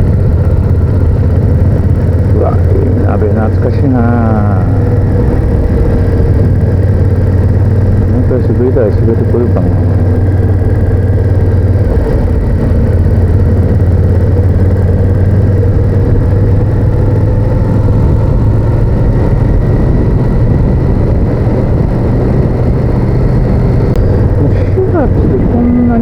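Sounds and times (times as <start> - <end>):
motorcycle engine cruising: 0.0 - 26.0
road noise: 0.0 - 26.0
wind noise: 0.0 - 26.0.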